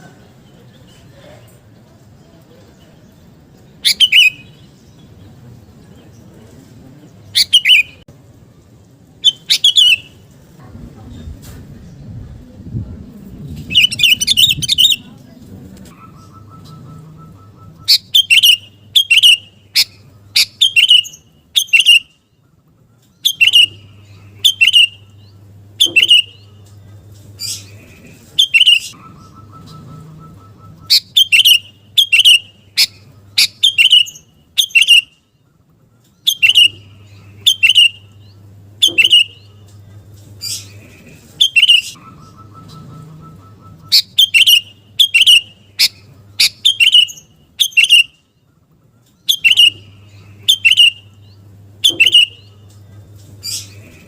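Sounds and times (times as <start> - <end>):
bird calling sharp notes: 15.9 - 22.1, 23.2 - 25.1, 25.8 - 26.5, 28.4 - 35.2, 36.2 - 38.2, 38.8 - 39.5, 40.4 - 48.2, 49.2 - 51.2, 51.8 - 52.6.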